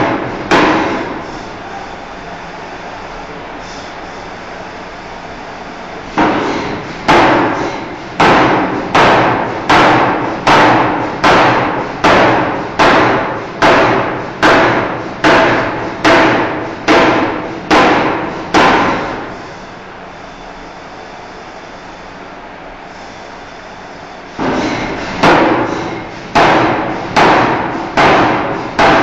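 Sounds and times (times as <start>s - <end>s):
forging hammer striking steel: 0.0s - 1.2s, 6.2s - 19.3s, 24.4s - 29.0s.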